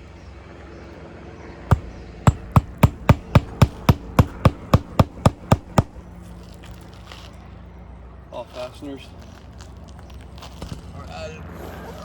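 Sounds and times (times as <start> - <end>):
hammer striking roofing nail: 1.7 - 6.2.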